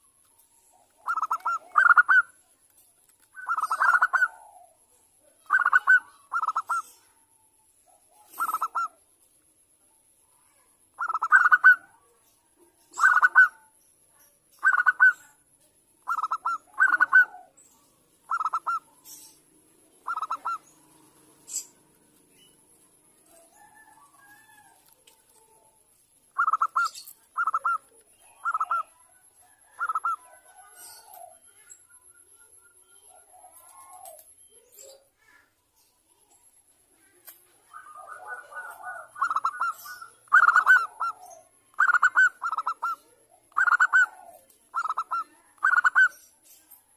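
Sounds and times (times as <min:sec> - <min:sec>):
dove cooing: 0:00.7 - 0:02.4, 0:03.4 - 0:07.2, 0:07.9 - 0:09.0, 0:11.0 - 0:11.9, 0:12.9 - 0:13.6, 0:14.6 - 0:15.3, 0:16.0 - 0:17.6, 0:18.2 - 0:22.2, 0:26.3 - 0:31.7, 0:33.0 - 0:34.3, 0:37.6 - 0:46.2.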